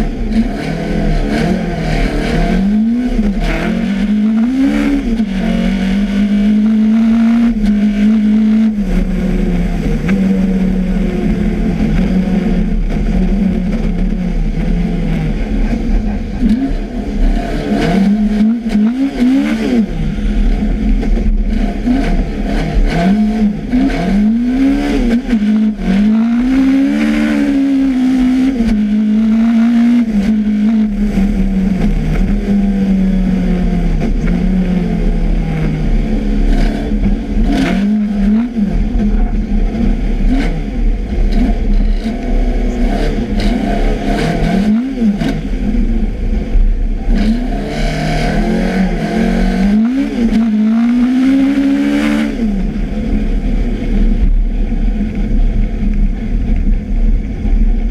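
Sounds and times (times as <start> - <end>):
rally car engine revving: 0.0 - 57.9.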